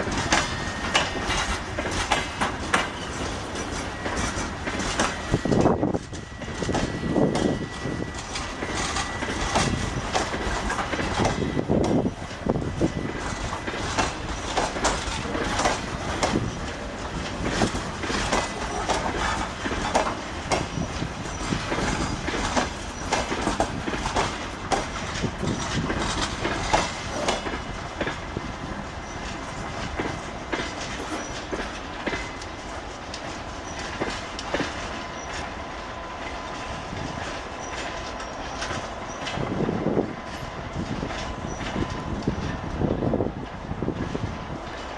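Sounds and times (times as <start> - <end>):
locomotive running noise: 0.0 - 44.9
train wheels clacking over rail joints: 0.0 - 44.9.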